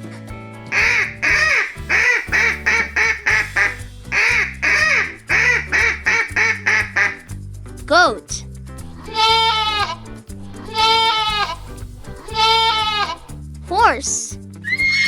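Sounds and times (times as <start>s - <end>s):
background music: 0.0s - 15.0s
duck quacking: 0.7s - 7.3s.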